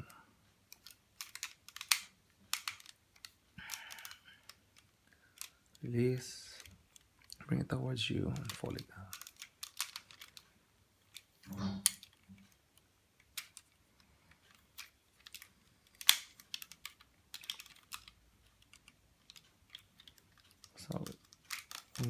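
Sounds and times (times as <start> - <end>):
plastic toy parts clicking: 0.0 - 7.5, 8.2 - 22.0
plastic snap: 14.8 - 18.1.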